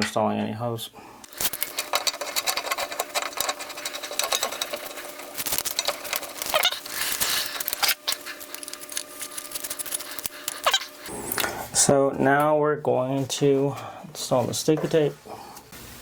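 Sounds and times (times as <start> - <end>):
metal shower hose clicking and rattling: 1.3 - 10.8.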